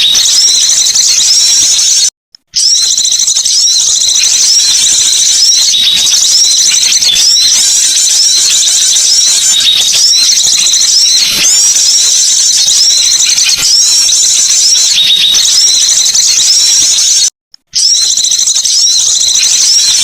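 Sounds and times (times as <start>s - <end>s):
songbirds twittering: 2.6s - 17.2s.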